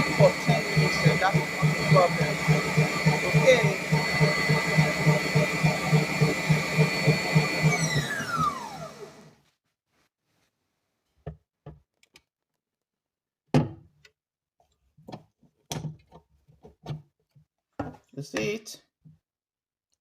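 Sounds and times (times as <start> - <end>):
electric mixer motor whine: 0.0 - 9.4.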